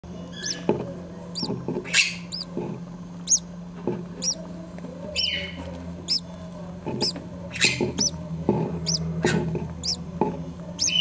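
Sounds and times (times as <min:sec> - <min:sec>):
parrot chicks peeping: 0:00.3 - 0:02.5, 0:03.2 - 0:03.6, 0:04.2 - 0:04.5, 0:05.1 - 0:06.3, 0:06.9 - 0:08.2, 0:08.8 - 0:10.1, 0:10.8 - 0:11.0.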